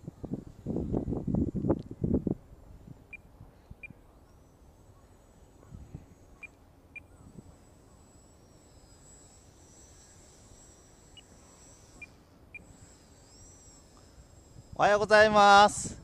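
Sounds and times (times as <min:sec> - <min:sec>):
wind rumble on microphone: 0:00.0 - 0:04.0, 0:14.5 - 0:16.0
small electric motor whine: 0:00.0 - 0:16.0.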